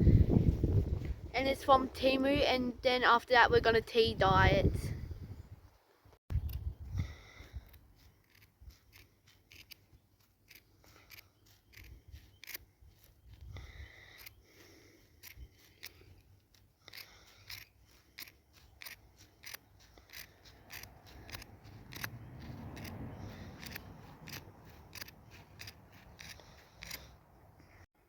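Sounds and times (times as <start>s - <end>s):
scissors snipping cloth: 15.2s - 27.2s.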